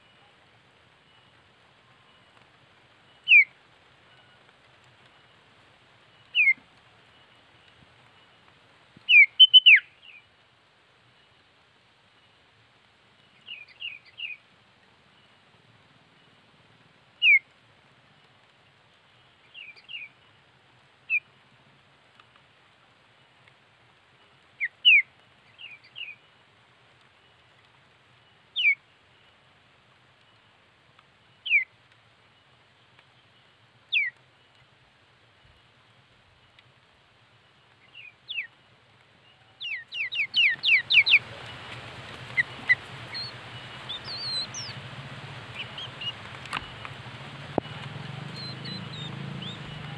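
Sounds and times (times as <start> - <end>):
bird whistled calls: 3.2 - 3.5, 6.3 - 6.6, 9.1 - 10.2, 17.2 - 17.4, 28.6 - 28.8, 31.5 - 31.7, 33.9 - 34.2, 39.6 - 41.6, 42.2 - 44.8, 47.6 - 49.9.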